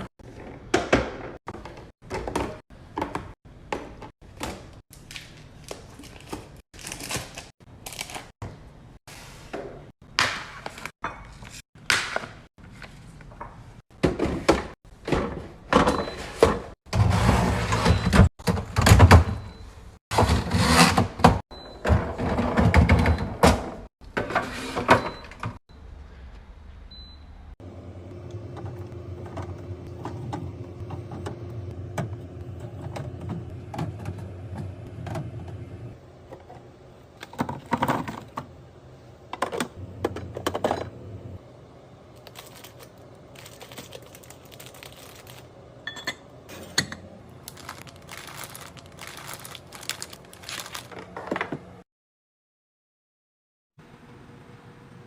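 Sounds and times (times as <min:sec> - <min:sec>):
cans and bottles clunking in fridge: 0:00.0 - 0:04.8, 0:13.4 - 0:19.5, 0:20.1 - 0:25.6, 0:28.2 - 0:36.5, 0:37.2 - 0:38.6, 0:39.3 - 0:41.1.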